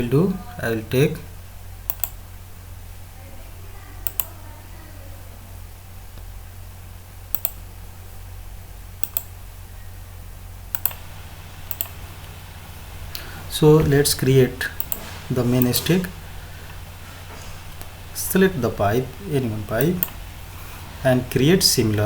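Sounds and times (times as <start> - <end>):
low electrical hum: 0.0 - 22.0
computer mouse clicking: 1.9 - 2.2, 4.0 - 4.3, 7.3 - 7.6, 9.0 - 9.3, 10.7 - 12.4, 14.8 - 15.8, 19.8 - 20.2.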